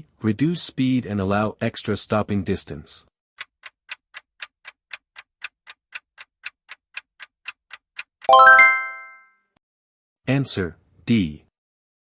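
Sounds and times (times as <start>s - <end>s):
clock ticking: 3.4s - 8.8s
bright multi-tone chime: 8.3s - 9.3s.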